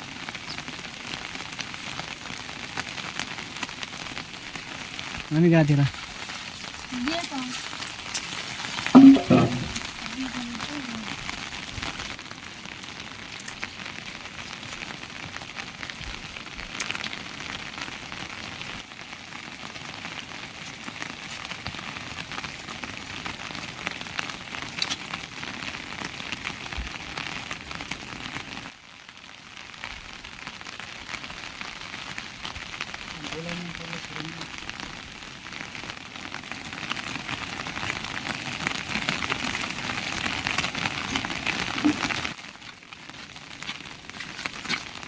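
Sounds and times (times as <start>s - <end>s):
rain falling: 0.0s - 45.0s
raindrop ticks: 0.1s - 18.8s, 19.7s - 28.7s.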